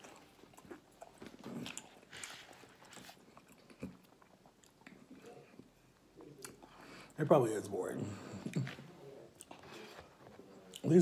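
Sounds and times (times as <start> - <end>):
person chewing: 0.0 - 6.8.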